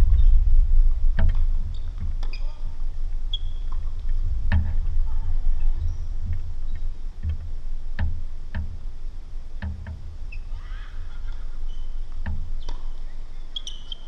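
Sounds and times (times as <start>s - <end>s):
low rumble: 0.0s - 13.5s
tennis ball struck by rackets: 12.2s - 13.1s.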